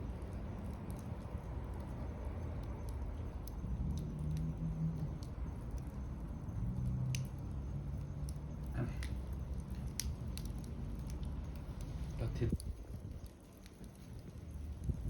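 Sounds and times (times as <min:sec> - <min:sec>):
fire low rumble: 0:00.0 - 0:15.0
wood fire crackling: 0:00.0 - 0:15.0.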